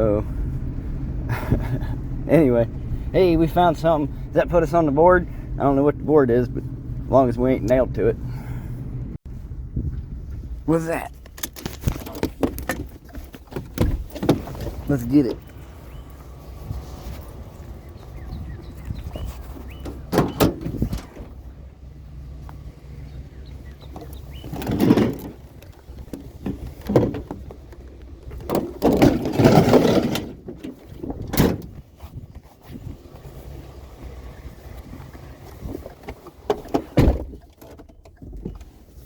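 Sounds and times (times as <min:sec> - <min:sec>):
low engine hum: 0:00.0 - 0:39.0
scrap thumping and rattling: 0:11.1 - 0:21.5, 0:23.8 - 0:33.4
door: 0:20.1 - 0:21.3, 0:24.5 - 0:25.4.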